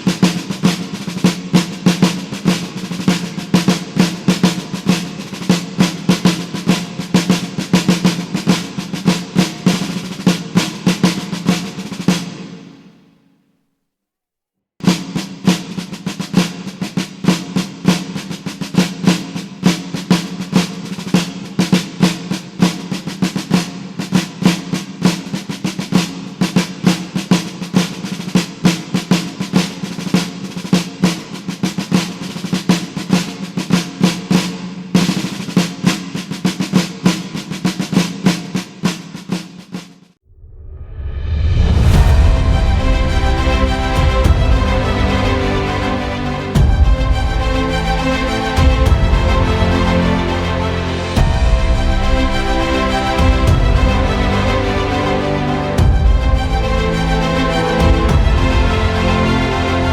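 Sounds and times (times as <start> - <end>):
snare drums marching cadence: 0.0 - 12.7, 14.8 - 40.0, 41.9 - 59.9
steady low drum tone: 40.4 - 59.9.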